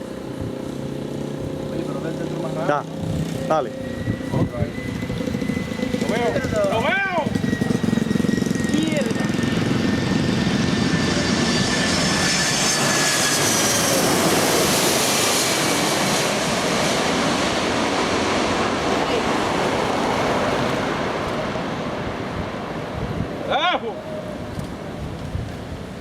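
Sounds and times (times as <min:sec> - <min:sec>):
jet engines roaring overhead: 0:00.0 - 0:26.0.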